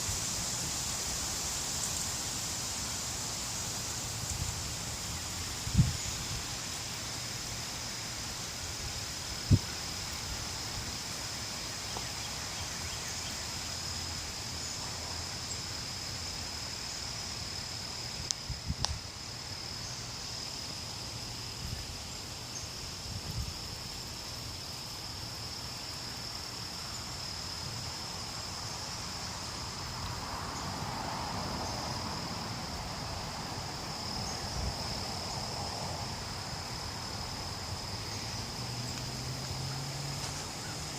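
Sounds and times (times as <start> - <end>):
high-pitched insect drone: 0.0 - 40.9
wind rumbling on microphone: 4.0 - 6.7, 18.2 - 19.1.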